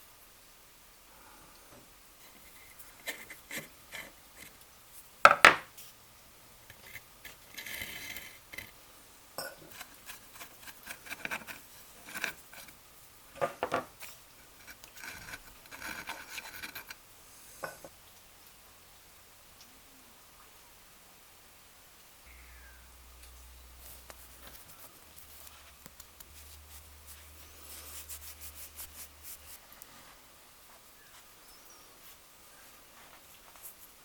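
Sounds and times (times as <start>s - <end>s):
metal scraping: 6.6s - 8.7s, 9.6s - 12.8s, 13.4s - 17.0s.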